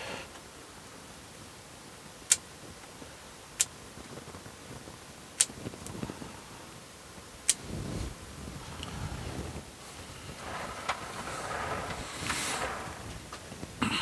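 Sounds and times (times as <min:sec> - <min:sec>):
soft handling noise: 0:07.5 - 0:13.8.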